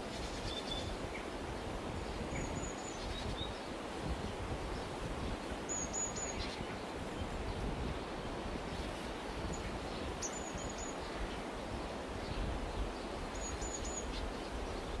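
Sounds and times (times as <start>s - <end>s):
rustling hiss: 0.0s - 15.0s
bird chirping: 9.5s - 11.0s.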